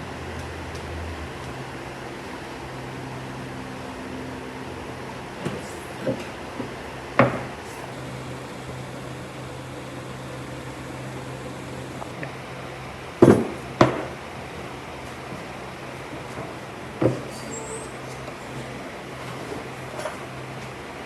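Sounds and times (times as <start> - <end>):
steady low hum: 5.4 - 6.4, 7.5 - 13.1.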